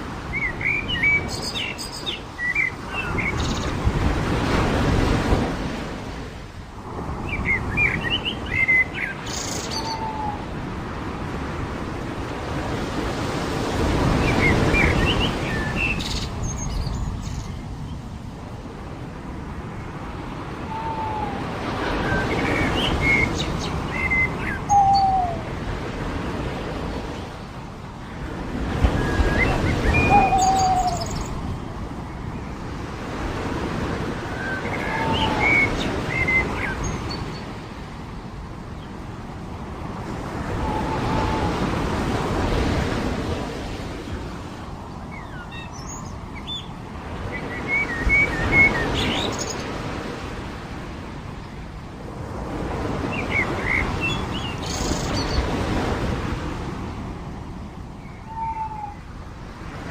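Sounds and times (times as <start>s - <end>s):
waves washing onto beach: 0.0s - 59.9s
birds chirping and whistling: 7.4s - 10.4s, 20.6s - 25.5s, 28.8s - 31.4s, 34.3s - 37.5s, 53.1s - 55.4s, 58.0s - 59.0s.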